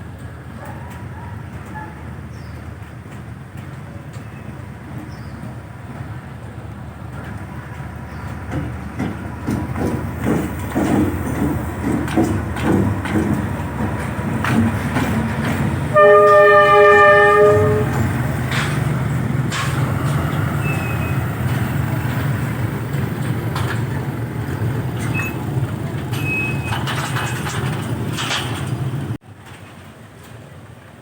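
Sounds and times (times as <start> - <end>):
wheels knocking on rail joints: 0.0 - 30.5
locomotive engine rumbling: 0.0 - 31.0
locomotive horn: 14.5 - 19.0.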